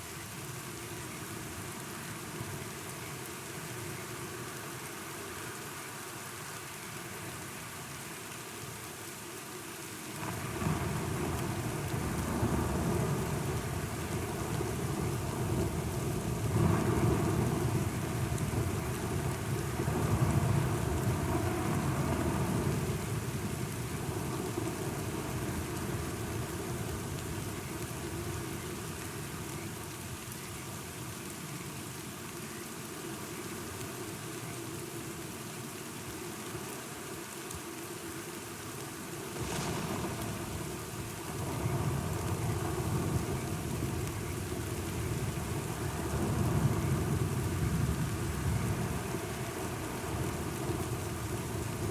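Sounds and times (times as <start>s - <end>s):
steady rain: 0.0s - 51.9s
sharp thunder crack: 39.4s - 43.5s
rolling thunder: 39.4s - 51.9s.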